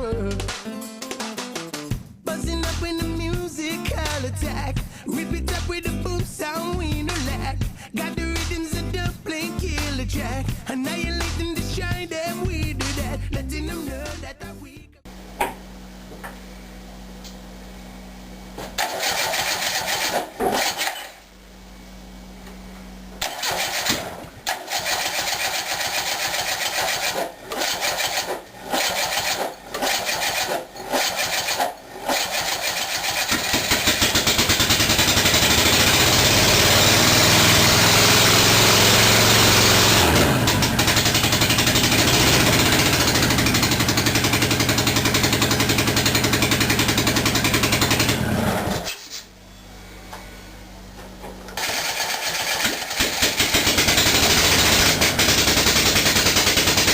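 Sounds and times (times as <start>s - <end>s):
unsilenced engine revving: 18.6s - 22.0s, 23.2s - 49.0s, 51.5s - 56.9s.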